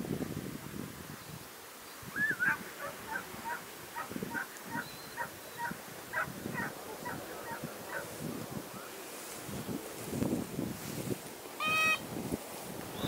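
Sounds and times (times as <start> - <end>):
wind rumble on microphone: 0.0 - 4.9, 5.6 - 13.0
bird calling: 2.2 - 8.1, 11.6 - 12.0.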